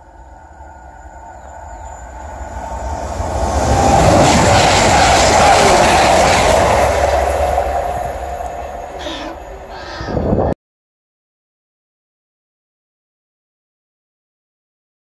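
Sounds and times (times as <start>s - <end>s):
train wheels clattering on rails: 1.3s - 10.0s.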